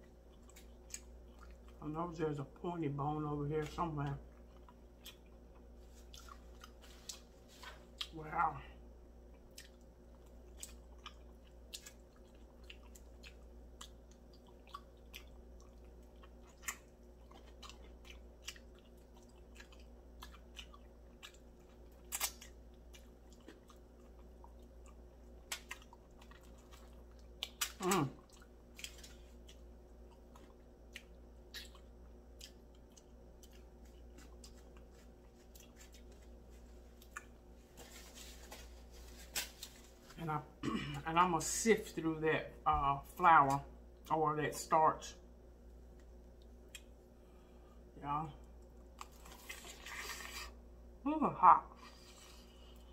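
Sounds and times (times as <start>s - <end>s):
crunchy chewing: 0.0s - 1.8s, 3.6s - 8.2s, 9.2s - 40.2s, 48.5s - 50.7s.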